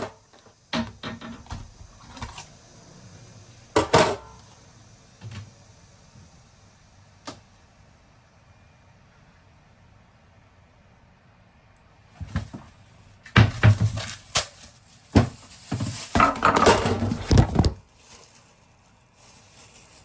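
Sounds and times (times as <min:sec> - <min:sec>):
dishes knocking and clattering: 0:03.8 - 0:04.4, 0:15.2 - 0:17.8.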